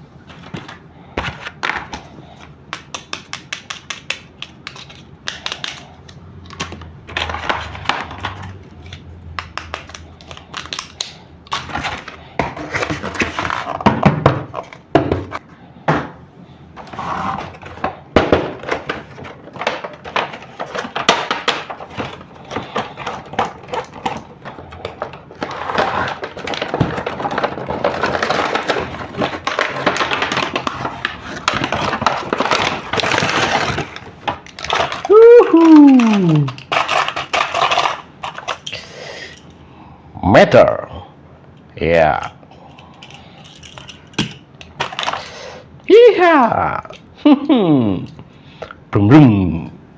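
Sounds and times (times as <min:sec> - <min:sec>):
plastic toy pieces clicking: 0:02.8 - 0:05.9, 0:31.6 - 0:38.8.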